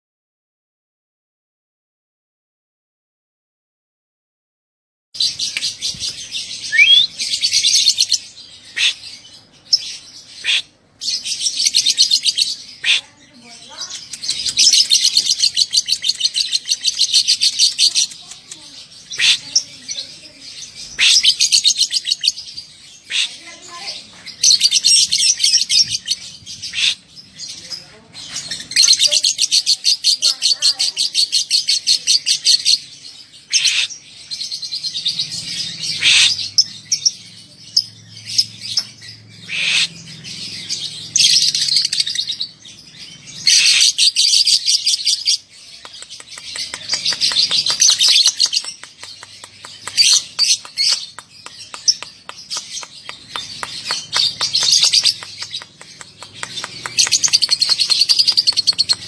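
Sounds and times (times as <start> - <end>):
lovebird chattering trills: 11.3 - 20.0, 43.4 - 59.0.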